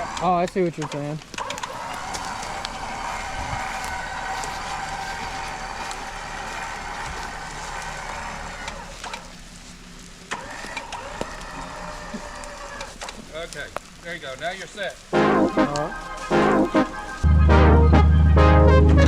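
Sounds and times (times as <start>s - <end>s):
electric winch whining: 0.0s - 0.7s, 1.4s - 13.8s, 14.6s - 18.6s
sharp clicks: 0.1s - 1.8s.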